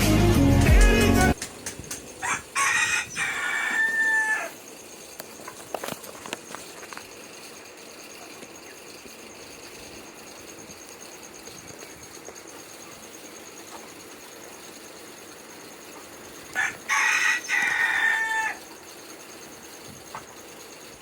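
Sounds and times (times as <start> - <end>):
rooster crowing: 2.2 - 4.6, 16.5 - 18.7.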